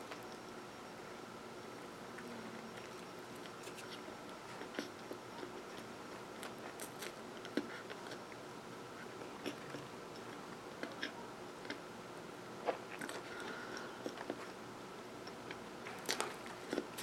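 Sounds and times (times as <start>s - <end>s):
person chewing bread: 2.2s - 11.8s, 12.9s - 14.6s, 15.2s - 17.0s
small crunches: 2.8s - 8.2s, 15.5s - 17.0s.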